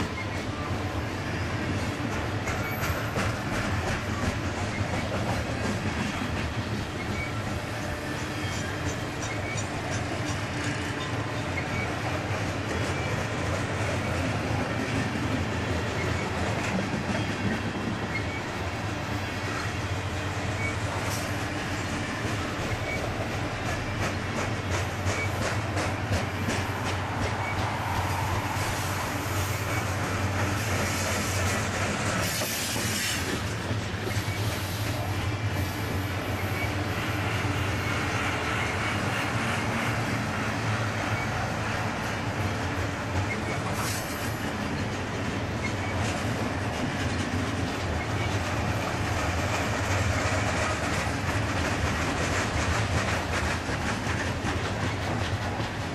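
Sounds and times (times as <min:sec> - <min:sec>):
steel wheels rumbling on rail: 0:00.0 - 0:55.9
wheels screeching: 0:20.4 - 0:24.0
clicking over rail joints: 0:20.6 - 0:35.0, 0:38.6 - 0:55.9.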